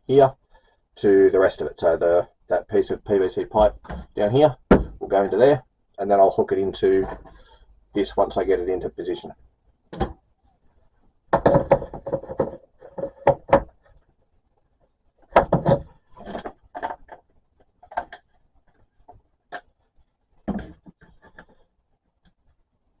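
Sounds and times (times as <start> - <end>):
plastic pipe fittings knocking: 11.3 - 14.1, 15.2 - 19.7, 20.4 - 21.6.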